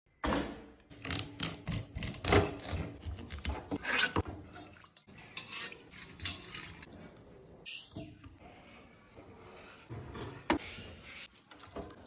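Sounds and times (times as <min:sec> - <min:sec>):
metal cooking utensils clattering: 0:05.0 - 0:06.9.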